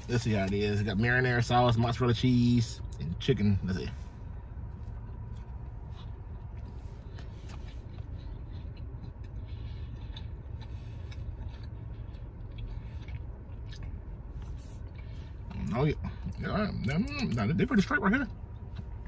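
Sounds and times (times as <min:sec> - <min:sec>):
car interior rumble: 0:00.0 - 0:19.0
man chewing food: 0:04.0 - 0:17.4, 0:18.2 - 0:19.0.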